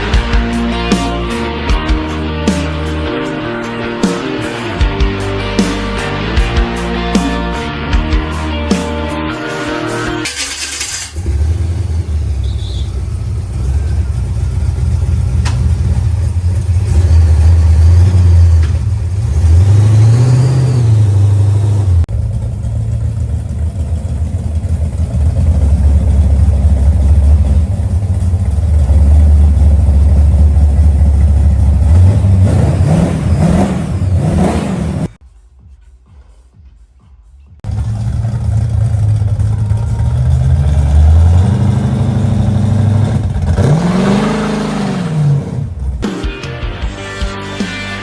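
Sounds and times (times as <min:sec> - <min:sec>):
car engine rumbling and revving: 0:10.2 - 0:35.2, 0:37.6 - 0:46.1.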